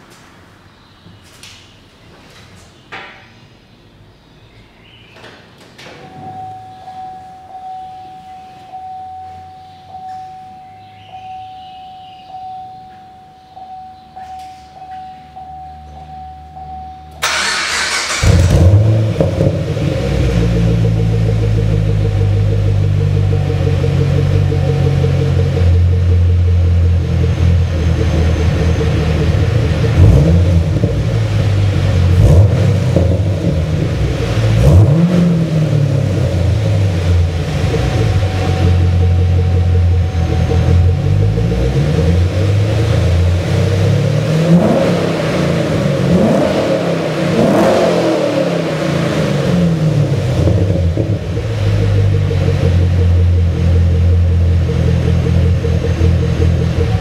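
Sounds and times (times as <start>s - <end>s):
electronic chime: 6.0s - 17.2s, 37.2s - 42.7s
car engine starting and revving: 17.2s - 57.0s.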